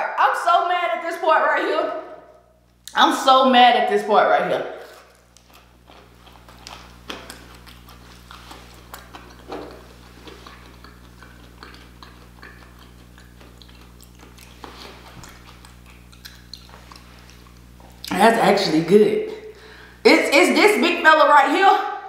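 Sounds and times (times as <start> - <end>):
person chewing: 4.8 - 18.2
wet mouth clicks: 6.4 - 18.1.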